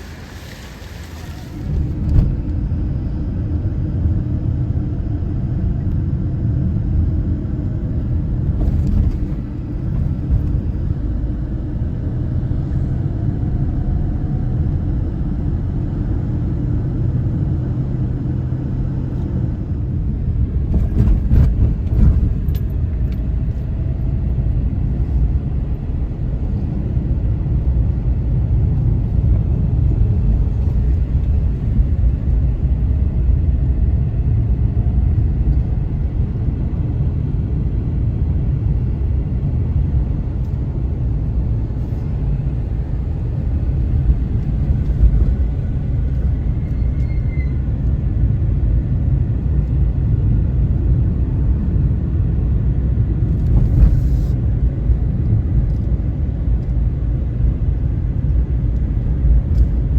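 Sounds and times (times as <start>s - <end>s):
rough surf: 0.0s - 2.0s.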